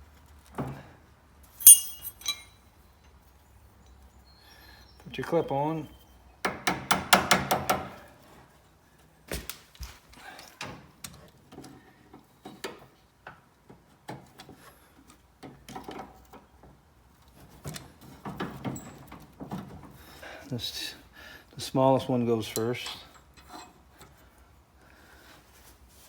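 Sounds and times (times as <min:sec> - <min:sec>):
steel parts knocking: 0:01.6 - 0:02.5.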